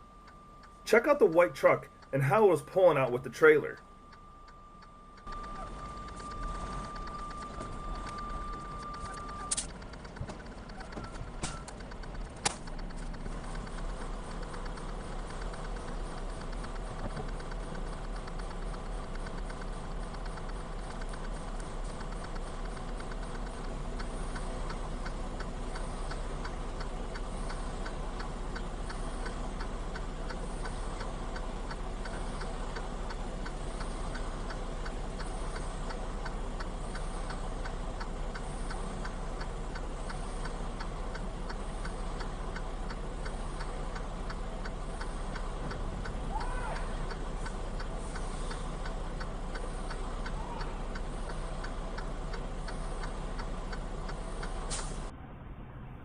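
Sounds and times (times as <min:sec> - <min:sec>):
steady ticking: 0:00.0 - 0:55.1
low steady rumble: 0:00.0 - 0:56.0
sharp click: 0:08.0 - 0:09.9, 0:10.7 - 0:13.0, 0:54.4 - 0:55.1.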